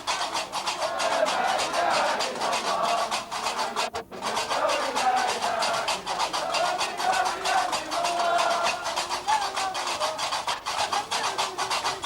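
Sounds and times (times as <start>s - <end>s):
iron castanets clattering: 5.0s - 12.0s.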